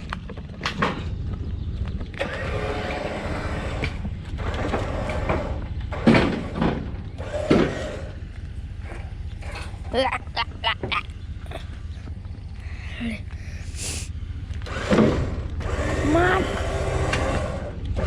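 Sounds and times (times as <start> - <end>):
low engine rumble: 0.0 - 18.0
mechanical whine: 14.2 - 18.0.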